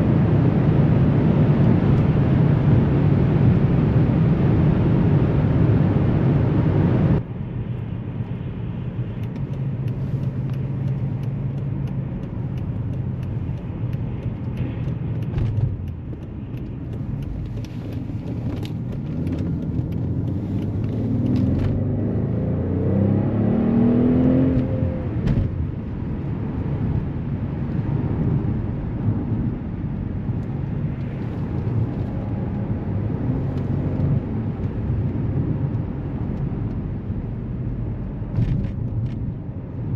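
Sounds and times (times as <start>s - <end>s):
road noise: 0.0s - 39.9s
car engine running: 1.0s - 22.3s.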